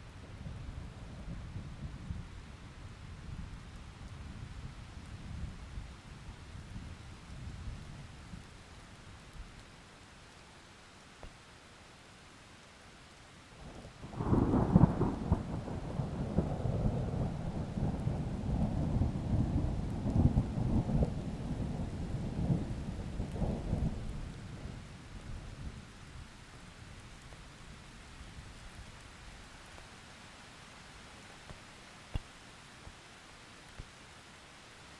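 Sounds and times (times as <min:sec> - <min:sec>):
faint rain hiss: 0:00.0 - 0:34.9
thunder rumbling: 0:14.0 - 0:24.9.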